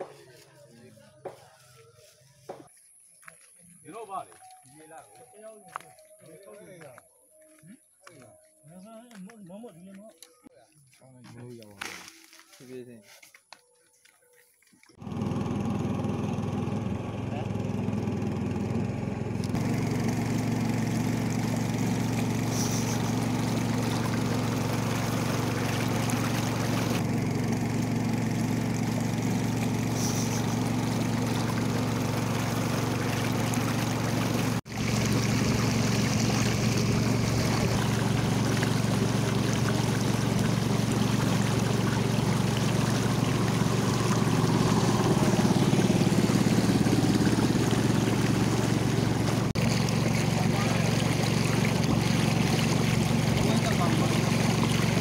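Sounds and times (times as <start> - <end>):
motorboat engine running: 14.8 - 55.0
water rushing along hull: 15.0 - 55.0.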